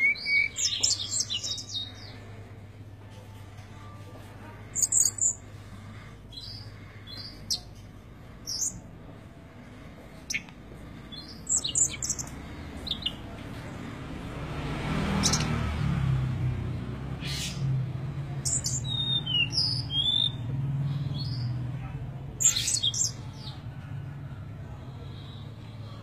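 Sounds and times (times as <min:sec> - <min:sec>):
small bird chirping: 0:00.0 - 0:02.2, 0:04.8 - 0:05.4, 0:06.3 - 0:07.8, 0:08.4 - 0:08.8, 0:10.2 - 0:13.2, 0:15.2 - 0:15.5, 0:18.3 - 0:21.6, 0:22.4 - 0:23.6.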